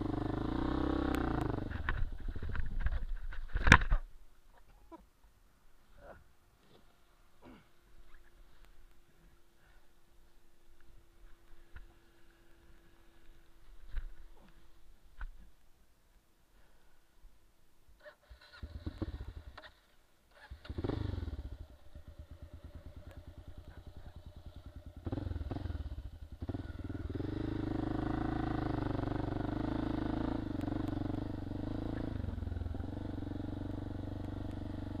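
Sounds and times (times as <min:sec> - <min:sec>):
motorcycle engine running: 0:00.0 - 0:03.1, 0:18.4 - 0:19.8, 0:20.4 - 0:35.0
motorcycle engine cranking: 0:18.0 - 0:23.6.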